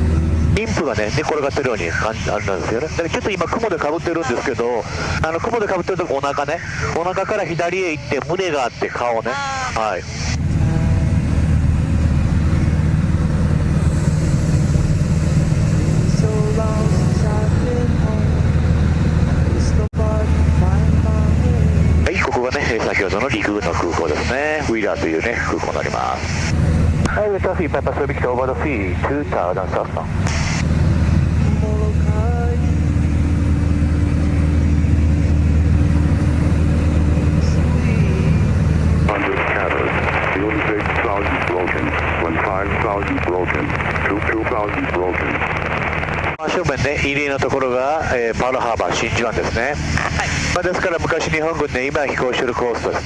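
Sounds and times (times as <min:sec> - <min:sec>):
propeller plane engine droning: 0:00.0 - 0:53.0
steady high tone: 0:00.1 - 0:29.7.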